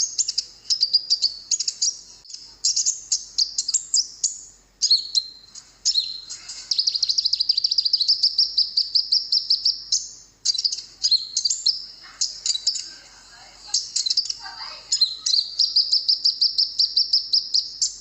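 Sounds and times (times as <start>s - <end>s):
sunbird chirping and trilling: 0.0s - 18.0s.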